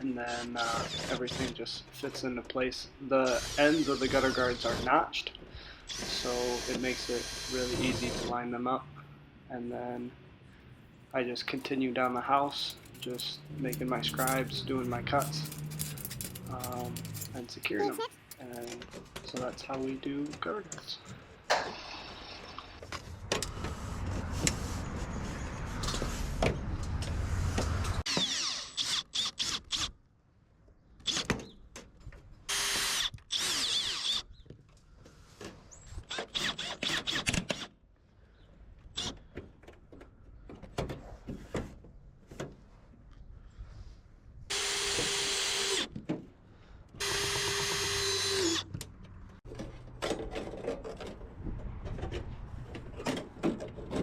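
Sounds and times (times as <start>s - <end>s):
cordless drill driving screws: 0.6s - 1.6s, 3.2s - 4.9s, 5.9s - 8.4s, 28.1s - 29.9s, 32.5s - 34.2s, 36.1s - 37.7s, 44.5s - 46.0s, 47.0s - 48.7s
handling clicks and knocks: 11.5s - 21.2s.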